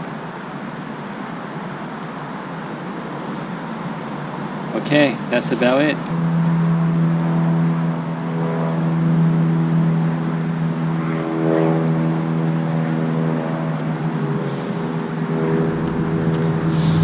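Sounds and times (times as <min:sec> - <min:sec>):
engine drone: 0:04.3 - 0:17.0.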